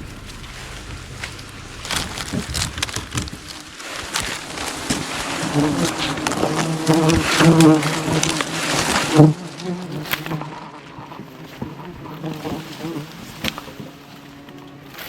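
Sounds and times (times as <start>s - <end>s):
rustling: 0.0s - 11.2s
honeybee swarm buzzing: 0.0s - 13.9s.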